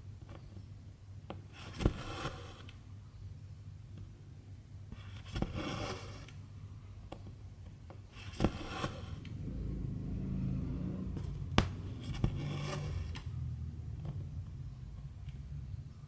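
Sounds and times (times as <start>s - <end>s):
low steady hum: 6.4s - 16.0s.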